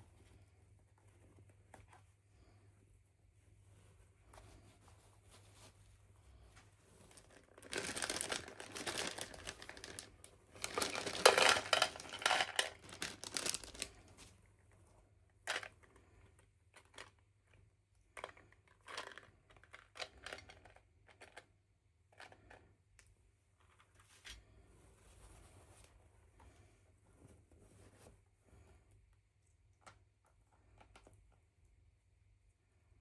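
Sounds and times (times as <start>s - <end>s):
packaging crinkling and tearing: 7.1s - 14.0s.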